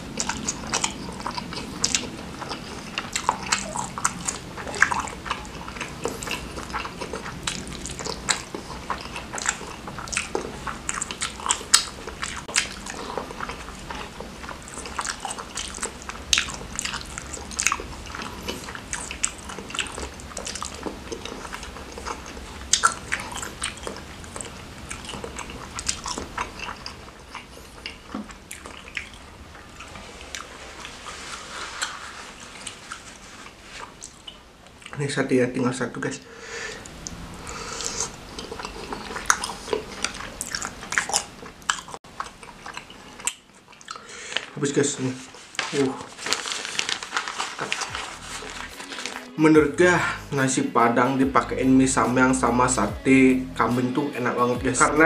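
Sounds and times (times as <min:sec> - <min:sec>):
chewing mouth clicks: 0:00.1 - 0:31.1, 0:36.8 - 0:44.6.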